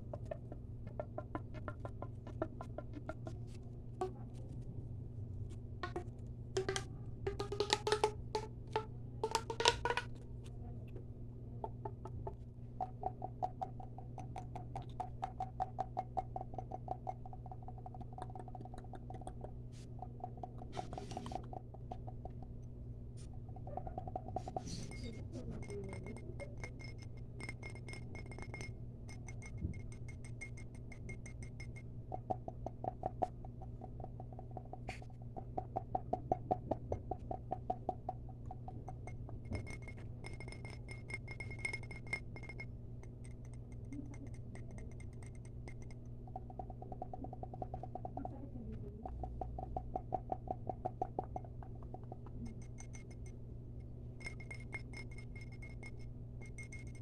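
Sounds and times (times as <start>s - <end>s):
rapid light tapping: 0.0s - 4.3s, 5.8s - 10.2s, 11.6s - 57.0s
glassy ringing taps: 11.6s - 19.2s, 20.0s - 22.7s, 23.4s - 48.3s, 49.0s - 57.0s.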